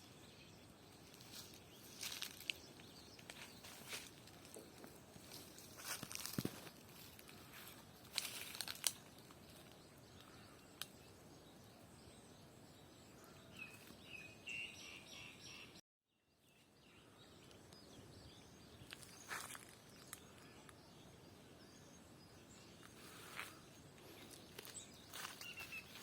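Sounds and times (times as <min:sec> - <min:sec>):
footsteps crunching on ground: 0:01.1 - 0:09.9, 0:18.8 - 0:20.4, 0:22.8 - 0:26.0
bird chirping: 0:08.9 - 0:26.0.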